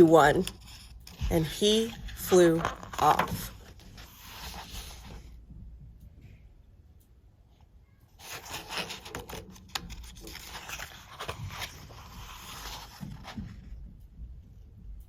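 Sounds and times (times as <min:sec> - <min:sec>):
book pages rustling: 0:00.0 - 0:05.3, 0:08.2 - 0:13.8.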